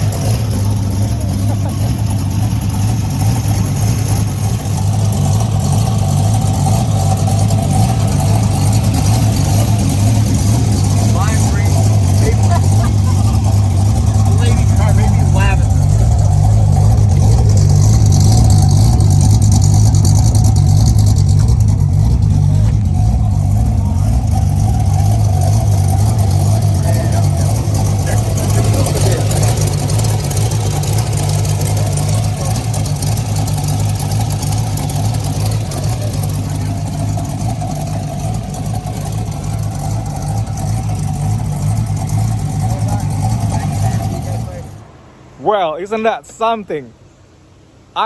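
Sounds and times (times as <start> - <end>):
car engine exhaust rumble: 0.0 - 48.0.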